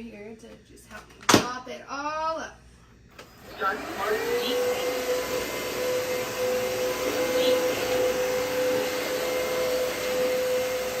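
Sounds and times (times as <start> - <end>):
vacuum mop motor whine: 3.1 - 11.0.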